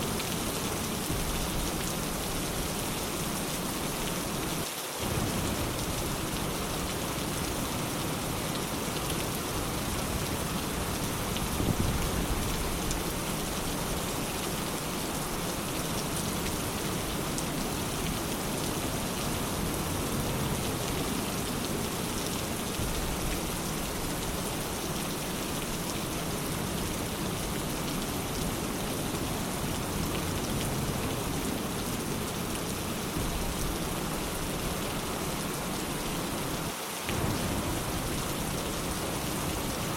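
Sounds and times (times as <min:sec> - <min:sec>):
rain falling on a surface: 0:00.0 - 0:39.9
distant thunder rumble: 0:05.0 - 0:07.5, 0:37.1 - 0:39.9.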